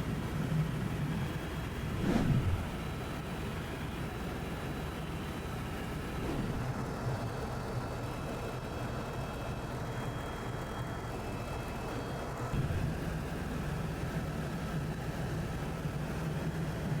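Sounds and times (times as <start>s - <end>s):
helicopter engine and rotor drone: 0.0s - 17.0s
wind noise: 1.2s - 3.2s.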